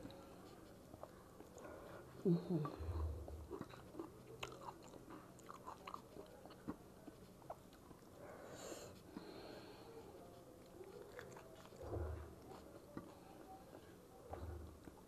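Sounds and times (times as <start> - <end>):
chewing and wet mouth clicks: 0.0 - 1.7, 3.2 - 8.2, 10.6 - 11.9.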